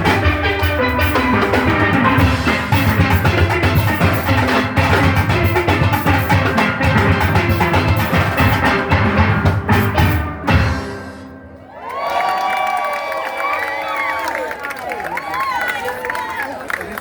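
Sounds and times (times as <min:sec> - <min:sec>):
drum kit: 0:00.0 - 0:11.5
steel band playing: 0:00.0 - 0:11.7.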